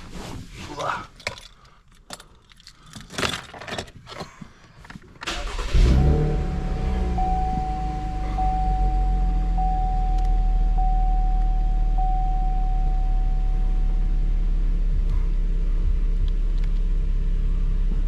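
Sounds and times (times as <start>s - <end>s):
car engine idling: 5.3s - 18.0s
electronic dashboard chime: 5.8s - 14.9s.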